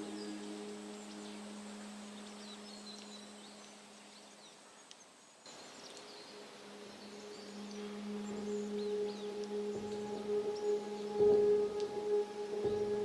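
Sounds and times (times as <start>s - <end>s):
faint hiss: 0.0s - 13.0s.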